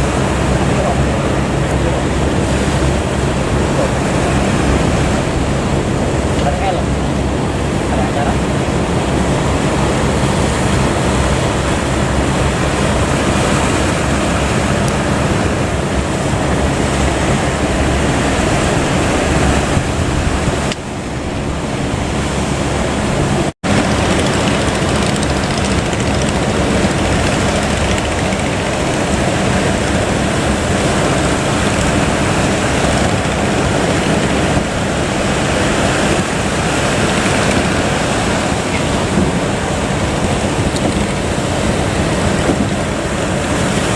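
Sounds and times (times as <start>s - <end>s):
boat engine running: 0.0s - 43.9s
waves washing: 0.0s - 43.9s
wind noise on microphone: 0.0s - 43.9s.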